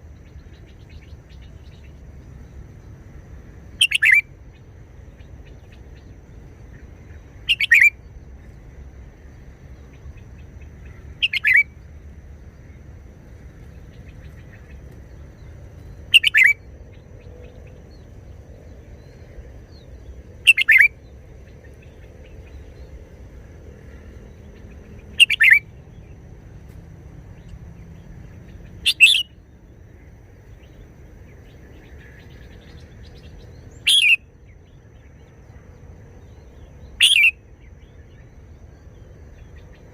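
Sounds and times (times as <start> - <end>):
bird singing whistled phrases: 3.8 - 4.3, 7.5 - 8.0, 11.2 - 11.7, 16.1 - 16.6, 20.5 - 21.0, 25.2 - 25.6, 28.8 - 29.4, 33.7 - 34.2, 37.0 - 37.4.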